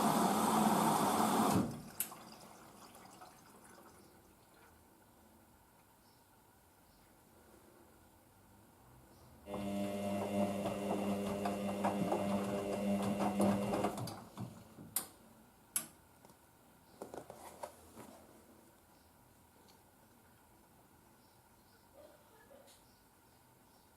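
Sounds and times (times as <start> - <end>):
washing machine motor hum: 0.0 - 4.2, 9.5 - 14.8.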